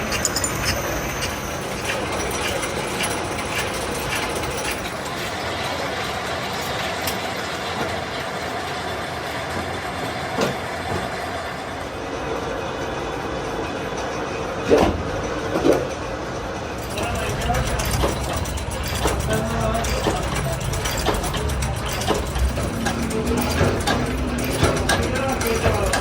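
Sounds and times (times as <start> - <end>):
workshop machinery running: 0.0 - 26.0
even ticking: 16.8 - 26.0.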